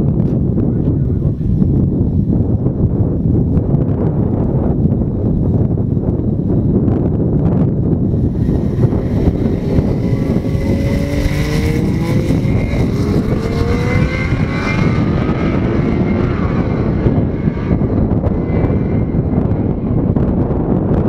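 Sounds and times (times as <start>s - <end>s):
car engine accelerating hard: 8.2s - 20.6s.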